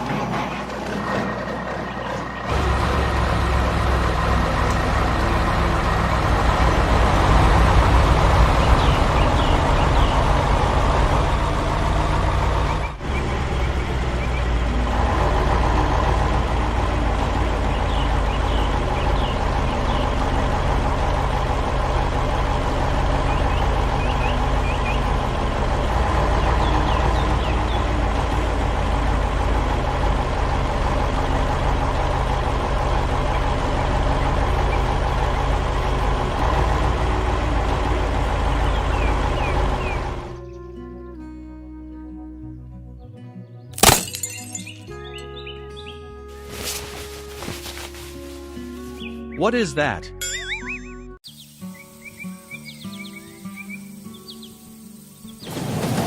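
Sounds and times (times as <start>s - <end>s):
heavy machinery engine humming: 0.0s - 41.3s, 46.3s - 50.0s, 50.8s - 56.0s.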